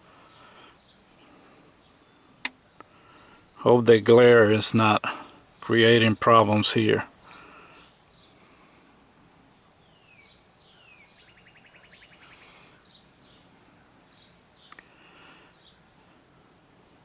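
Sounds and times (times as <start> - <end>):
faint birdsong chirps and whistles: 0.0 - 17.0
bird trill: 9.6 - 13.5.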